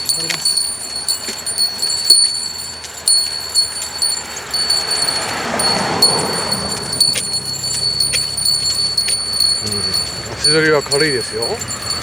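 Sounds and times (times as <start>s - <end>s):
small bell jingling: 0.0s - 12.0s.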